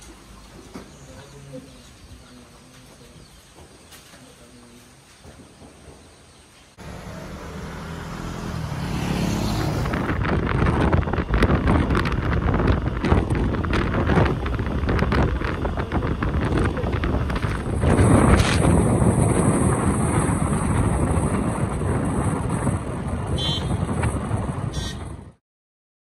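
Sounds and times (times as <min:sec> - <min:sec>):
road and engine noise: 0:05.6 - 0:25.4
wind buffeting microphone: 0:07.8 - 0:25.4.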